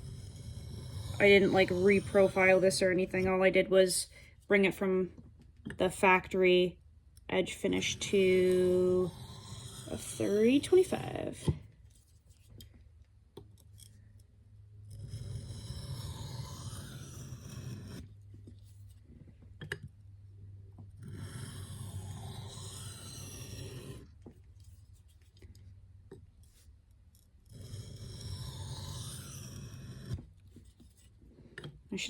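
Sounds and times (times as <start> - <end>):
knife scraping on sharpening stone: 27.5 - 30.2.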